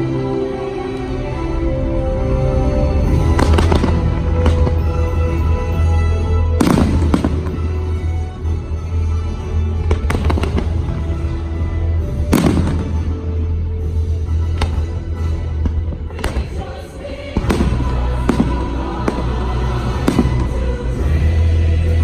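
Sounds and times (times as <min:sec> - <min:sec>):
fireworks bangs: 0:03.0 - 0:05.6, 0:06.6 - 0:08.1, 0:09.9 - 0:11.2, 0:12.2 - 0:13.6, 0:14.5 - 0:21.2.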